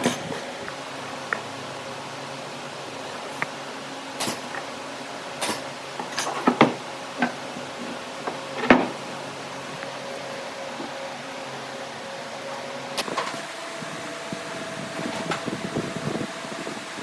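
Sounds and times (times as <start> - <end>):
low machine hum: 0.0 - 17.0
knocks and clunks: 6.0 - 9.0.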